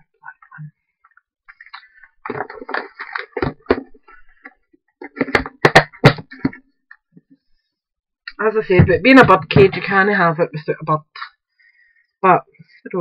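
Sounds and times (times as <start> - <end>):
craft materials rustling: 1.5 - 6.6.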